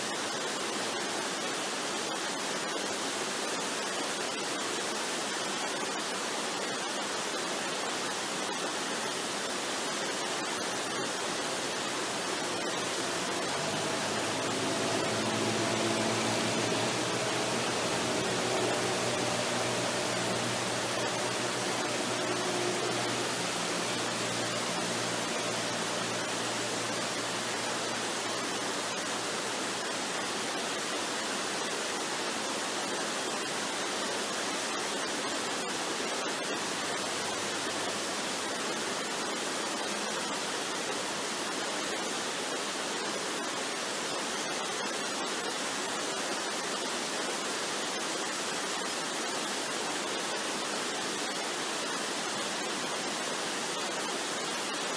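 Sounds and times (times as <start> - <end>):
waterfall roaring: 0.0 - 54.9
faint low sustained tones: 11.4 - 30.2.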